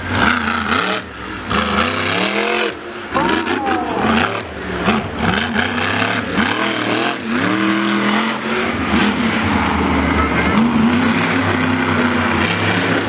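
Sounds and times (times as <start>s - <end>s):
race vehicle engine revving: 0.0s - 13.0s.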